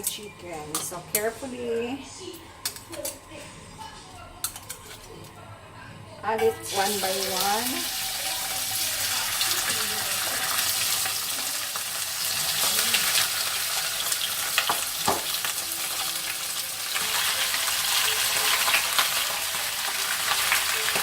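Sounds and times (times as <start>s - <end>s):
chicken sizzling in hot oil: 6.7s - 21.0s.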